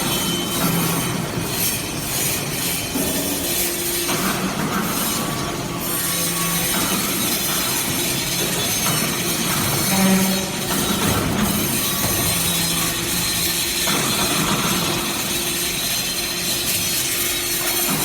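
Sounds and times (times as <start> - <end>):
hydraulic press running: 0.0 - 18.0.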